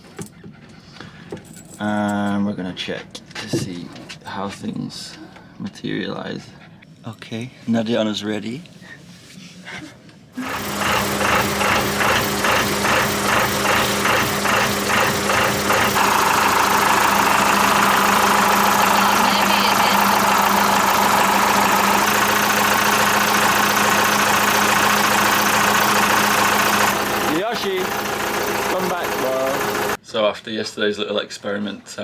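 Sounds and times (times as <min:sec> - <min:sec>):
diesel engine idling: 0:10.4 - 0:30.0.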